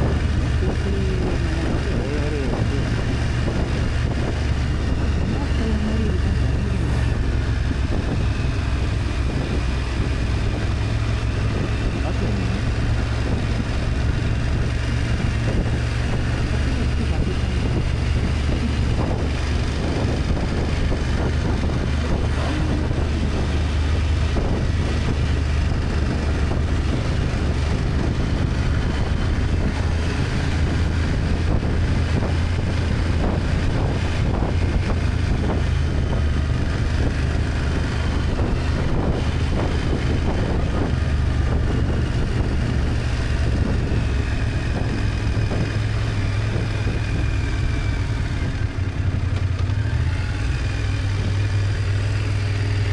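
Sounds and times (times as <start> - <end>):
motorcycle engine running: 0.0 - 52.9
wind rushing over microphone: 0.0 - 52.9.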